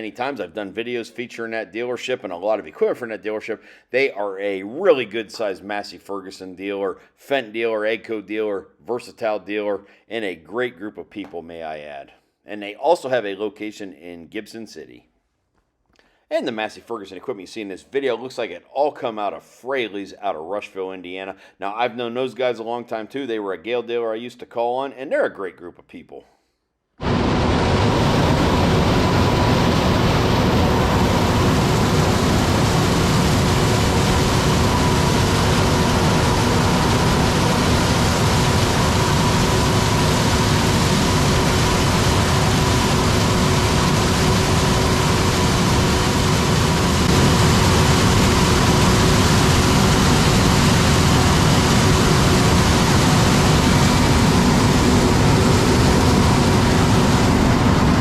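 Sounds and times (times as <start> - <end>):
faint steady whine: 27.0 - 58.0.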